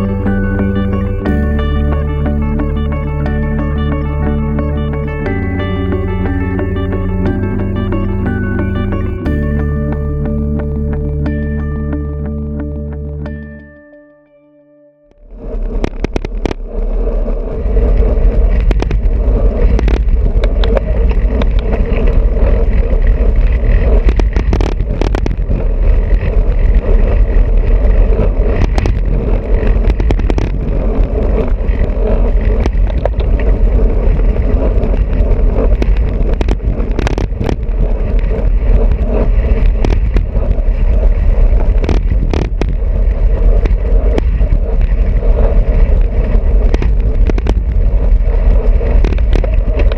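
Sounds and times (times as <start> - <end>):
wind on microphone: 0.0 - 11.6, 15.2 - 49.9
tyres humming on road: 0.0 - 13.8, 15.1 - 49.9
bicycle clicks and rattles: 15.1 - 49.9.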